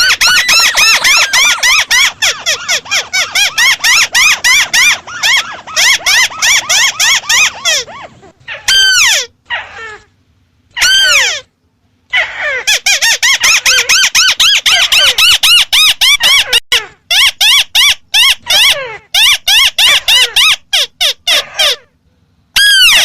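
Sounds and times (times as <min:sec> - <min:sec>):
bird calling in short notes: 0:00.0 - 0:02.0.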